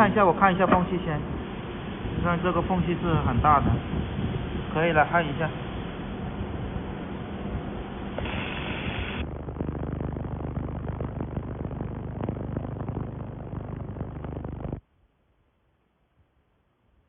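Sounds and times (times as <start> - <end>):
welding machine hum: 5.5 - 14.8
bright welding hiss: 8.1 - 9.2
fine welding crackling: 8.1 - 14.8.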